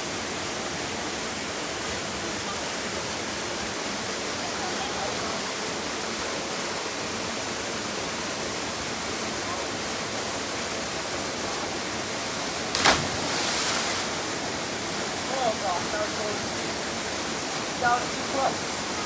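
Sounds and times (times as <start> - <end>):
waterfall rushing: 12.5 - 19.0
body splashing into water: 12.6 - 14.5.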